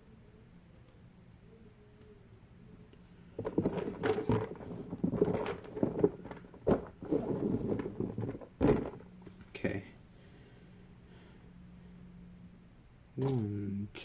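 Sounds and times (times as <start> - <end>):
fidget toys rustling and knocking: 3.4 - 9.4.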